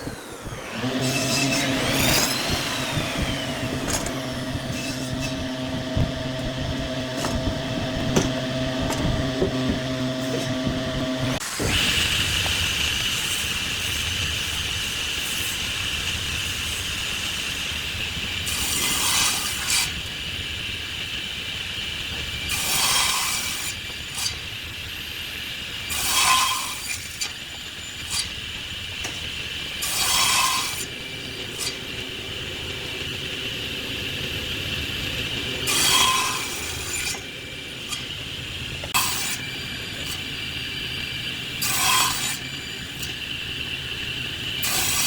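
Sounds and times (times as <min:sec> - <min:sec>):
turning tool cutting wood: 0:00.0 - 0:14.2, 0:25.8 - 0:45.0
wood lathe whine: 0:00.0 - 0:45.0.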